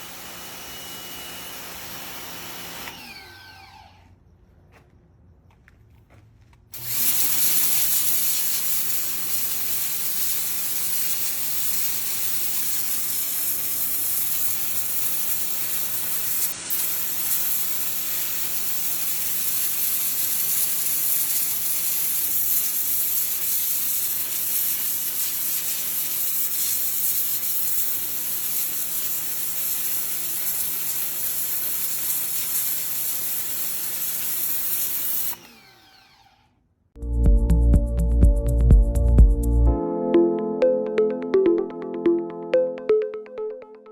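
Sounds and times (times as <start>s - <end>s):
pressure washer spraying: 0.0s - 3.7s, 6.8s - 36.1s.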